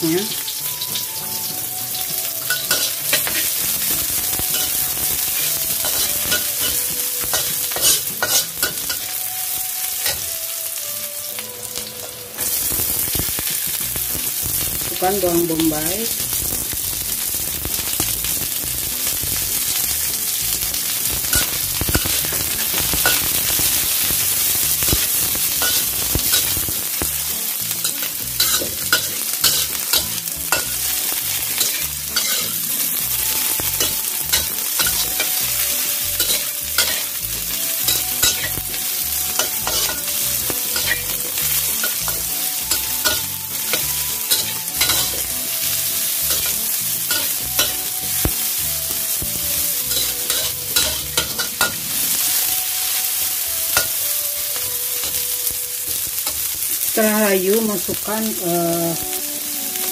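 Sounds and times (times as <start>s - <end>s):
vegetables sizzling in oil: 0.0s - 59.9s
metal spatula scraping a pan: 2.4s - 9.2s, 21.0s - 47.9s, 49.2s - 52.5s.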